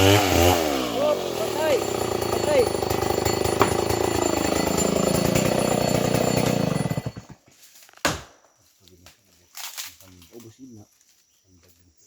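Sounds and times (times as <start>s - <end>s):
chainsaw engine running: 0.0s - 7.4s
sharp knock: 3.6s - 3.9s, 8.0s - 8.4s.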